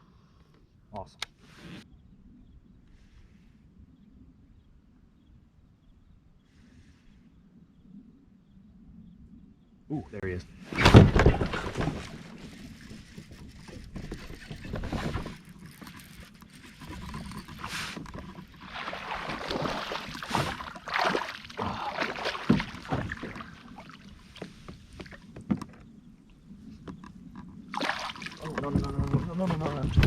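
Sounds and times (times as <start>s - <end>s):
water splashing: 10.8s - 25.2s, 27.7s - 30.0s.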